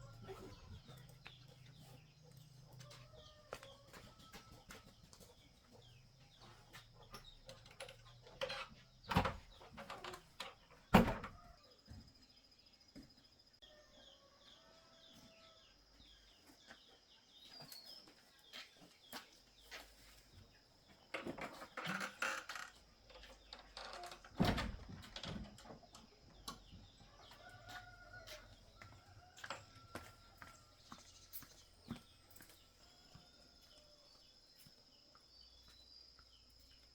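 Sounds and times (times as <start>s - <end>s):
chickens crowing and clucking: 0.0s - 5.4s, 26.1s - 31.5s.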